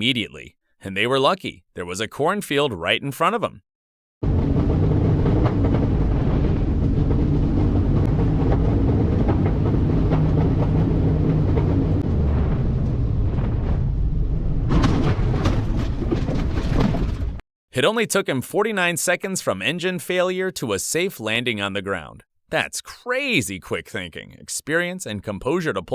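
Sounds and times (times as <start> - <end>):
harsh rattling and crackling: 4.2 - 13.6, 14.7 - 17.4
aircraft engine rumble: 4.2 - 14.9.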